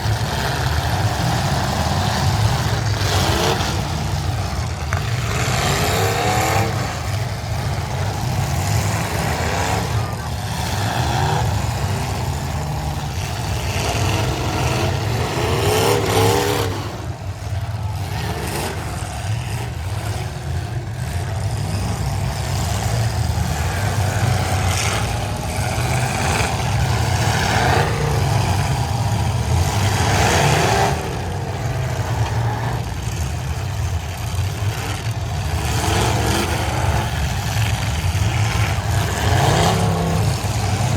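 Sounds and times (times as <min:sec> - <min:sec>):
car engines revving: 0:00.0 - 0:40.9.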